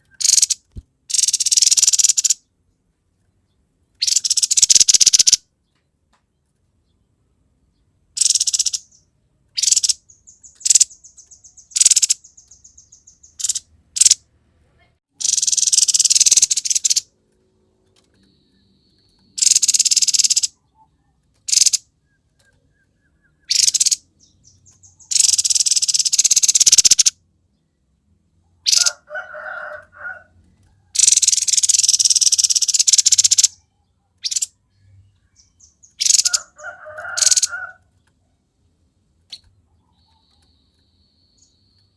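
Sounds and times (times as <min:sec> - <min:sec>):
bird chattering: 0:00.0 - 0:02.5, 0:04.0 - 0:05.4, 0:08.2 - 0:09.0, 0:09.6 - 0:14.2, 0:15.1 - 0:17.1, 0:19.4 - 0:27.2, 0:28.6 - 0:29.1, 0:31.0 - 0:33.6, 0:34.2 - 0:34.6, 0:35.4 - 0:37.8
bird ticking trill: 0:00.0 - 0:02.5, 0:04.0 - 0:05.4, 0:08.2 - 0:14.2, 0:15.1 - 0:17.1, 0:18.2 - 0:27.2, 0:31.0 - 0:33.6, 0:34.2 - 0:37.8
bird harsh rasping calls: 0:00.1 - 0:02.5, 0:04.0 - 0:05.4, 0:08.2 - 0:09.0, 0:09.6 - 0:14.2, 0:15.2 - 0:17.1, 0:19.4 - 0:20.6, 0:21.5 - 0:21.9, 0:23.4 - 0:27.2, 0:28.6 - 0:30.3, 0:31.0 - 0:33.6, 0:34.2 - 0:34.6, 0:35.4 - 0:37.8.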